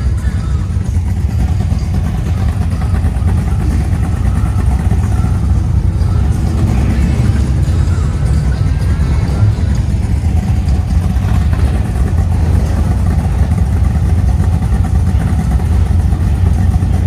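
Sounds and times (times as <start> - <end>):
car engine and exhaust rumble: 0.0 - 17.0.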